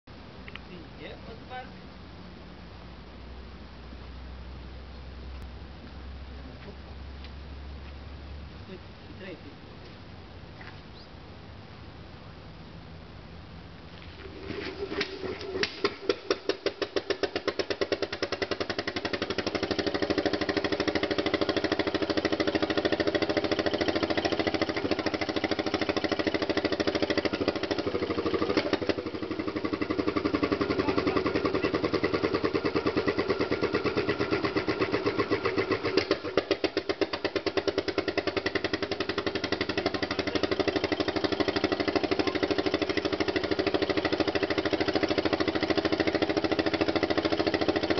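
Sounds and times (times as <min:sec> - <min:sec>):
diesel engine knocking: 0:15.8 - 0:47.9.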